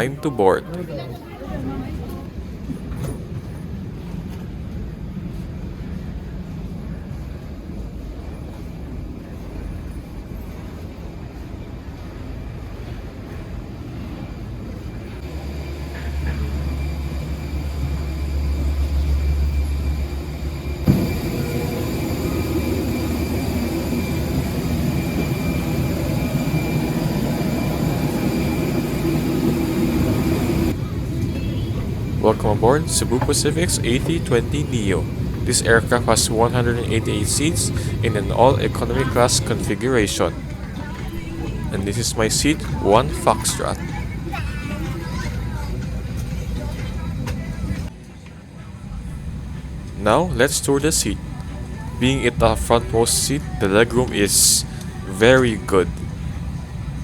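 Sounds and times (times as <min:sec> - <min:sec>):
low engine rumble: 0:14.8 - 0:47.9, 0:48.6 - 0:57.0
faint high whine: 0:15.1 - 0:44.2.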